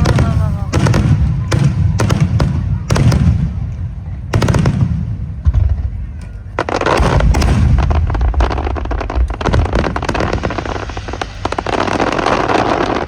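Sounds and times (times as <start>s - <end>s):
firework booms: 0.0s - 13.0s
firework crackling pops: 6.0s - 13.0s.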